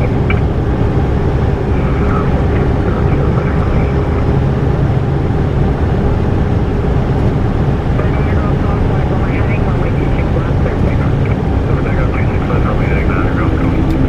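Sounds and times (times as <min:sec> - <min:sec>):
faint steady hum: 0:00.0 - 0:14.0
jet cabin engine rush: 0:00.0 - 0:14.0.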